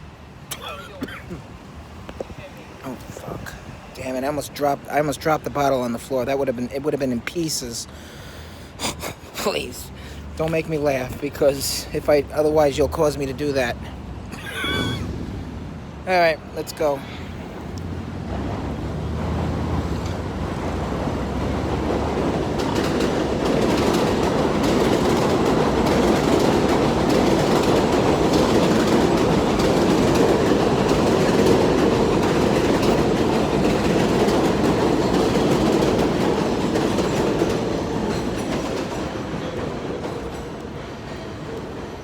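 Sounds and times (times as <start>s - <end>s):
train wheels clattering on rails: 17.6s - 42.0s.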